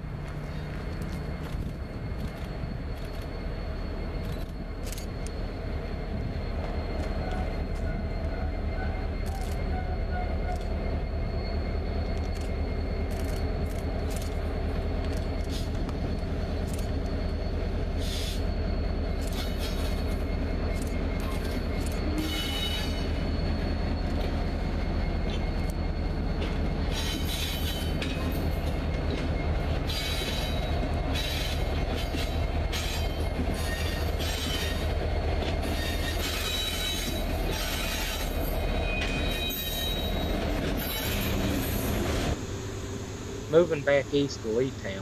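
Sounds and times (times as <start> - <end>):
train wheels rumbling on rail: 0.0 - 45.0
metal wheel squeal: 6.2 - 13.6, 15.4 - 35.0, 35.6 - 42.2.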